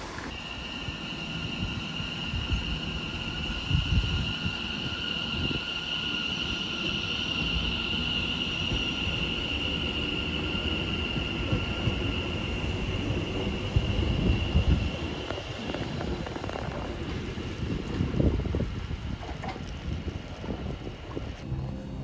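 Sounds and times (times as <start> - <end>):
steady high-pitched whine: 0.0 - 17.6
train low rumble: 0.0 - 22.0.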